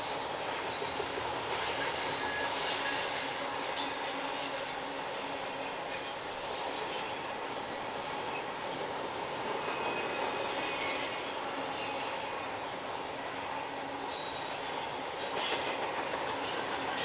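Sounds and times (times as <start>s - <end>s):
wheels squealing on curved rail: 0.0s - 7.6s, 9.4s - 12.5s, 14.1s - 17.0s
train wheels rumbling on rail: 0.0s - 17.0s.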